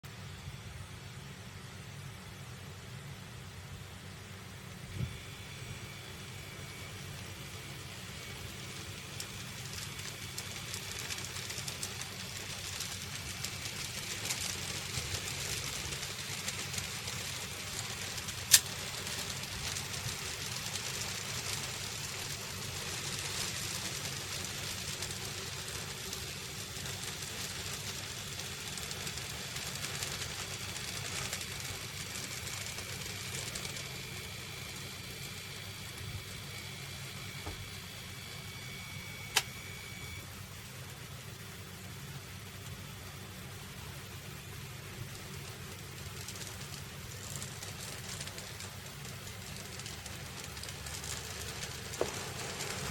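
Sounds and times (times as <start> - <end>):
model train motor hum: 4.3 - 40.2, 42.9 - 52.9
wheels clicking over track: 8.3 - 35.0, 45.0 - 52.9
thin high whine: 29.2 - 40.3.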